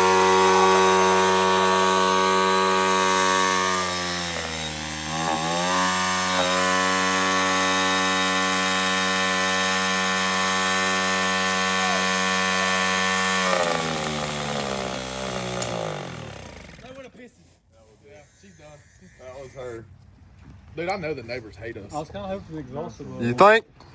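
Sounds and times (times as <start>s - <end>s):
dirt bike engine at full throttle: 0.0s - 16.8s.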